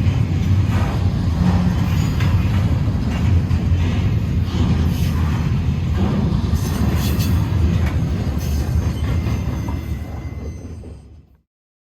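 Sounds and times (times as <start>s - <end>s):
train wheels rumbling on rails: 0.0s - 11.4s
wheel squeals: 8.0s - 11.3s.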